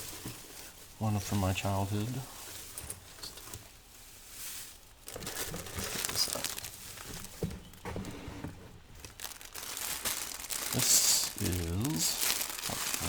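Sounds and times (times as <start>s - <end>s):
packaging crinkling: 4.4s - 8.1s, 8.7s - 13.0s.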